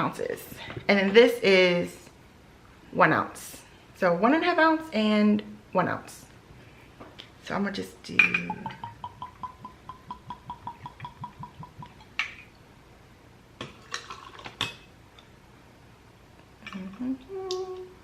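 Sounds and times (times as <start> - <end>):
liquid glugging from bottle: 8.6 - 12.4
woman humming: 16.6 - 18.0.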